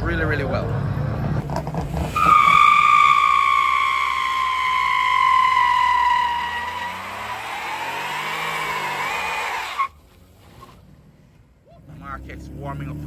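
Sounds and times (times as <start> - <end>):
tyres squealing: 1.8 - 10.0.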